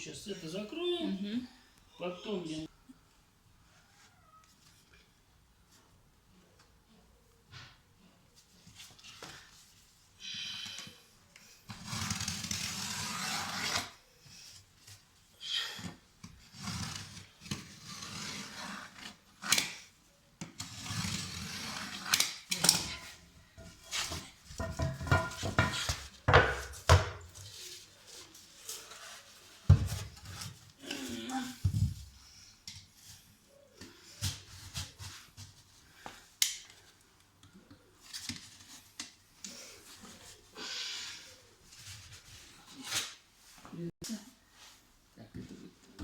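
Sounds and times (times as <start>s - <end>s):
scraping drywall: 11.7s - 14.0s, 16.4s - 19.8s, 20.6s - 27.6s
knocks and clatters: 23.6s - 27.4s.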